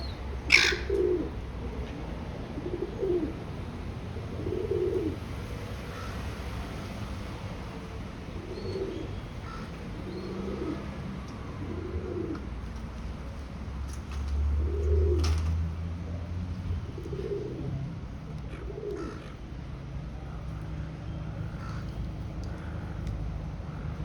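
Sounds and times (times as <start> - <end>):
pigeons cooing: 0.0 - 6.3, 8.1 - 12.8, 14.6 - 15.4, 16.8 - 19.5, 20.4 - 24.0.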